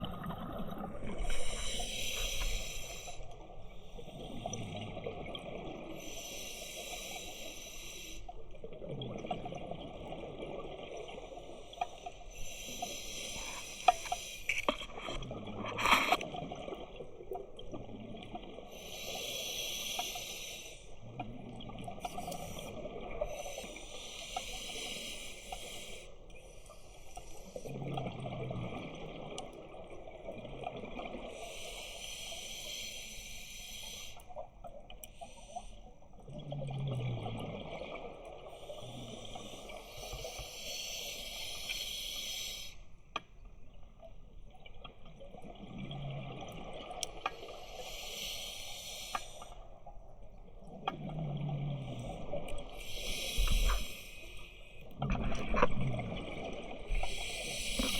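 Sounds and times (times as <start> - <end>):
exhaled bubbles: 0.0 - 6.3, 49.7 - 57.9
regulator breathing hiss: 1.3 - 3.3, 6.0 - 8.2, 12.4 - 14.6, 18.8 - 20.9, 23.3 - 26.1, 31.4 - 34.2, 39.3 - 42.8, 47.4 - 49.6, 52.8 - 54.7, 57.0 - 57.9.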